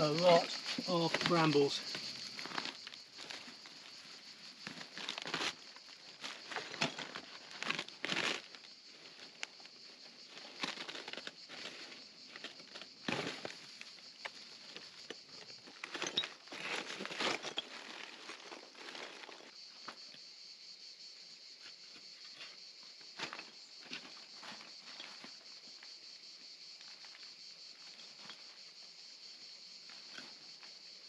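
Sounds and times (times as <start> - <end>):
brambles rustling and tearing: 4.6 - 8.7.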